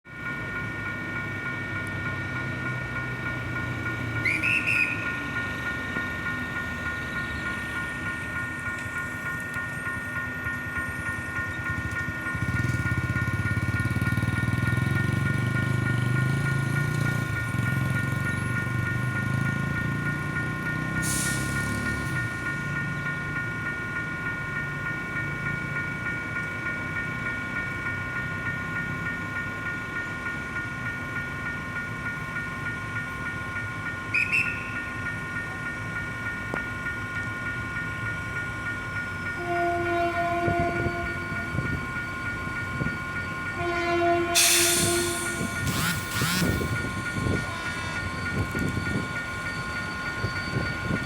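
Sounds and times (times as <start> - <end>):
level-crossing bell ringing: 5.0 - 51.0
train horn: 39.4 - 41.5, 43.6 - 46.8.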